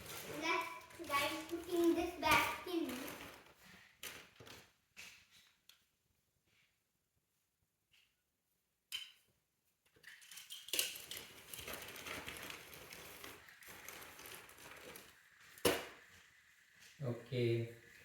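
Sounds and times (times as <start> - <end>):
plastic toy pieces rustling and clattering: 0.0 - 4.7, 9.9 - 16.5.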